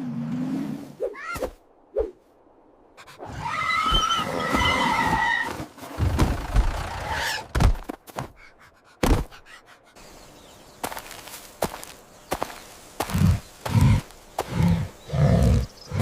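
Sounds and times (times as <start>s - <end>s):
tyres squealing in a skid: 3.3s - 5.7s.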